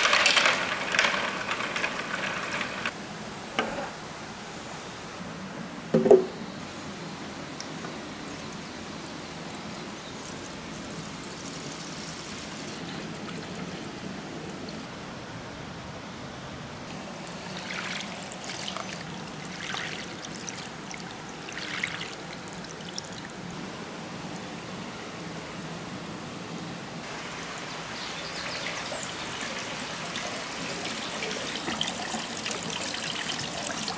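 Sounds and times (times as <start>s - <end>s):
water running down a slide: 0.0s - 2.9s, 16.9s - 23.5s, 27.0s - 33.9s
marbles rattling through water: 0.0s - 3.0s.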